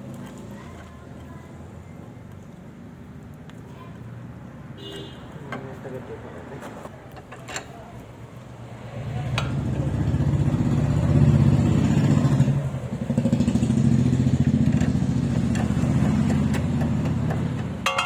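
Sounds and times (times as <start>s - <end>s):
vehicle engine running: 9.0s - 18.0s.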